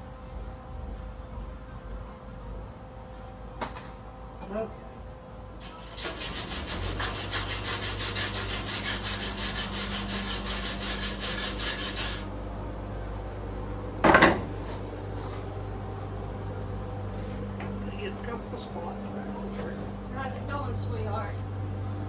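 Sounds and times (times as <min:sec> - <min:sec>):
welding arc crackling hiss: 0:05.6 - 0:12.3
low steady hum: 0:06.9 - 0:22.0.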